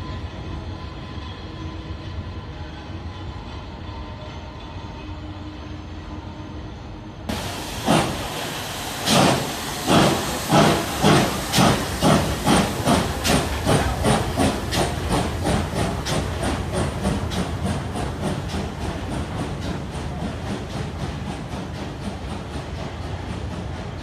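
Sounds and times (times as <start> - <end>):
steady steam hiss: 7.3 - 24.0
steam locomotive exhaust chuffs: 7.3 - 24.0.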